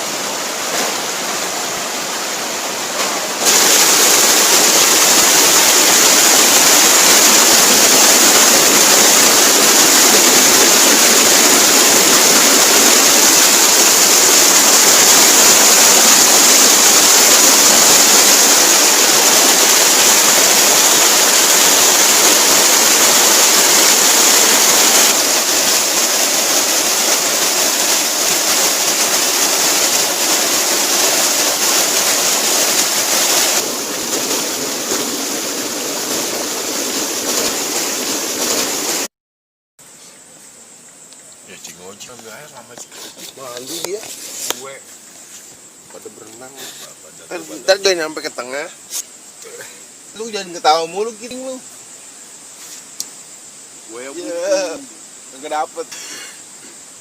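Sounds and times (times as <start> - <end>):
waterfall roaring: 0.0 - 39.1.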